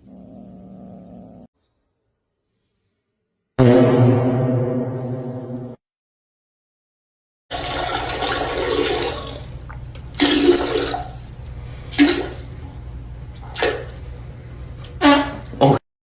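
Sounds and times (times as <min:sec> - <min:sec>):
short loud sounds: 0:03.6 - 0:05.8
water rushing and draining: 0:07.5 - 0:12.7.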